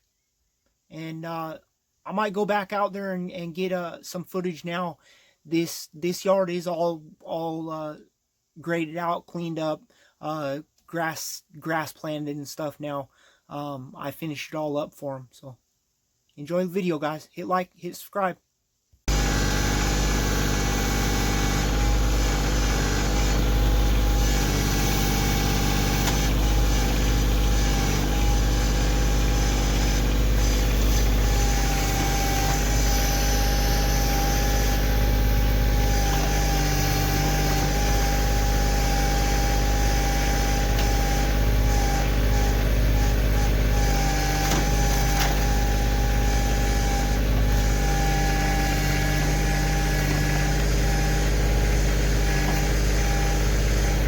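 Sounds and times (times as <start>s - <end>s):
steady whine: 19.1s - 54.0s
tractor diesel engine running: 19.1s - 54.0s.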